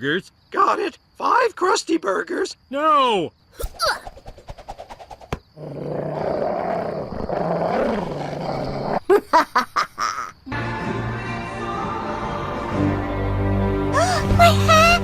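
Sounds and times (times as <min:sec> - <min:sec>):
cartoon scuffle: 0:03.6 - 0:05.4
music: 0:10.5 - 0:15.0.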